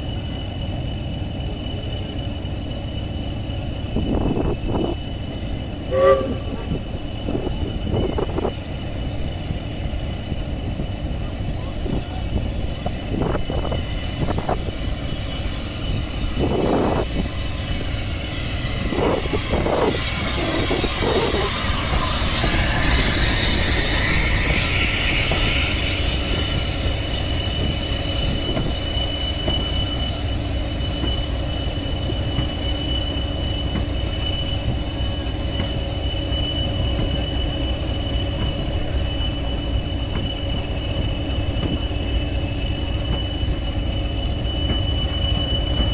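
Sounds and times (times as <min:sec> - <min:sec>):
high wheel squeal: 0:00.0 - 0:45.9
train rumbling: 0:00.0 - 0:45.9
rushing hiss: 0:12.6 - 0:44.1.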